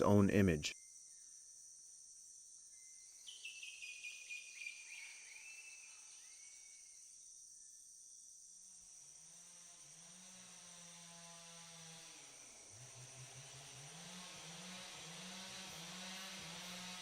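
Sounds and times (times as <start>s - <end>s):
high insect drone: 0.7s - 17.0s
bird whistled calls: 3.2s - 6.7s.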